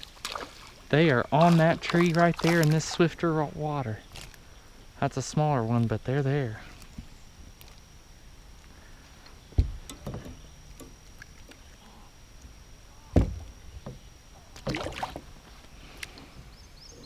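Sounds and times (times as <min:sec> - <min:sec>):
hollow knocks and thumps: 0:09.6 - 0:10.4
faint high-pitched tone: 0:11.4 - 0:15.1.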